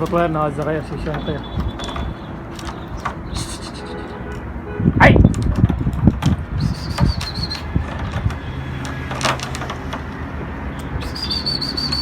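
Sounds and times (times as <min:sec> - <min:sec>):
warbled whistle: 0:06.6 - 0:07.7, 0:11.0 - 0:12.0.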